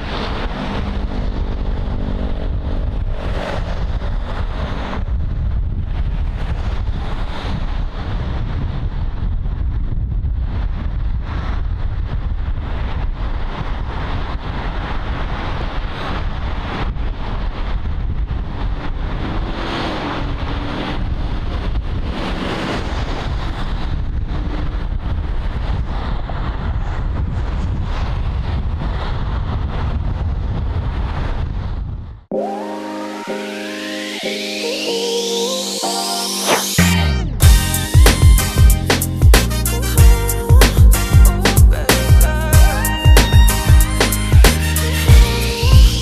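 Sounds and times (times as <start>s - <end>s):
freeway traffic noise: 0.0s - 8.9s, 12.6s - 26.7s
wind rumbling on microphone: 0.0s - 32.3s.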